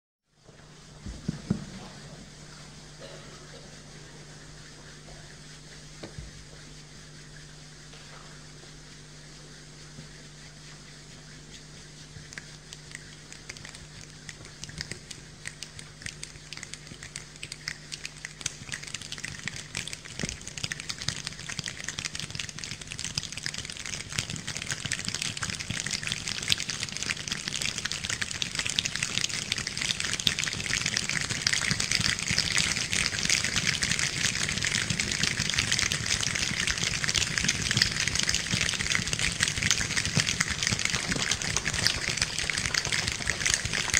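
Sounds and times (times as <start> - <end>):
rain falling: 30.3 - 43.9.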